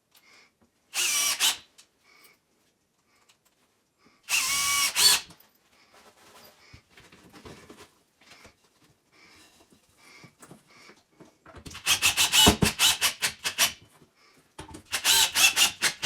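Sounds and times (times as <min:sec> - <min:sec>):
power drill whirring: 0:00.9 - 0:01.7, 0:04.3 - 0:05.3, 0:11.7 - 0:13.8, 0:14.9 - 0:16.0.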